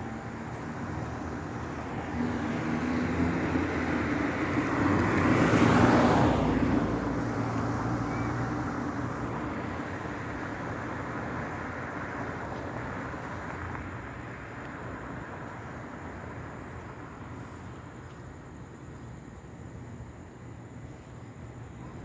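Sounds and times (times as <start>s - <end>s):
motor vehicle passing: 0.0s - 7.7s.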